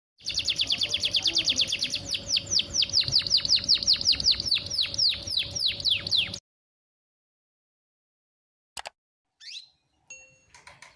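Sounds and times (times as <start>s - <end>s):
canary chirping: 0.2s - 6.4s, 9.4s - 9.9s.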